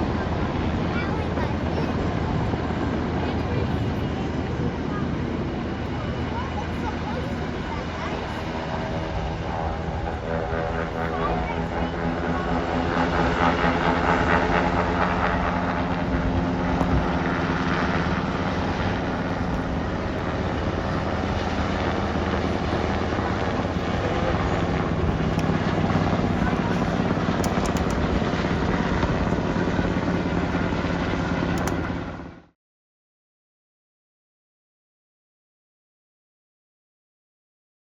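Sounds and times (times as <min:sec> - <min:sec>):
helicopter rotor drone: 0:00.0 - 0:32.6.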